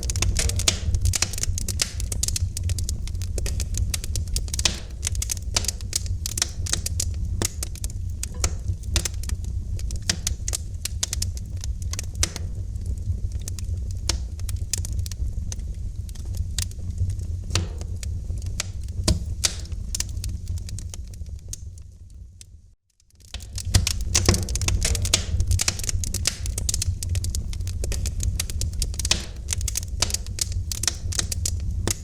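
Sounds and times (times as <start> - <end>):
wood fire crackling and popping: 0.0 - 32.0.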